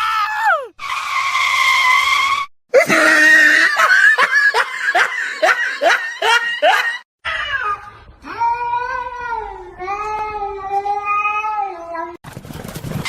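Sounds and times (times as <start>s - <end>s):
person laughing in bursts: 2.8s - 7.0s.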